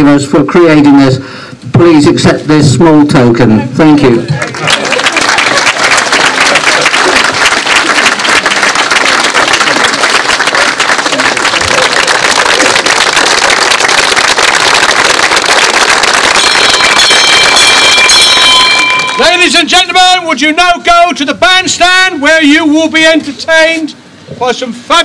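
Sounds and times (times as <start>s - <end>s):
crowd applauding: 4.4s - 19.6s.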